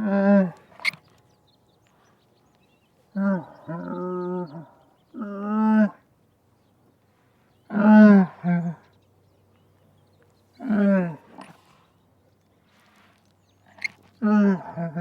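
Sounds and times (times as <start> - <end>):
camel moaning: 3.2 - 6.0, 13.7 - 15.0.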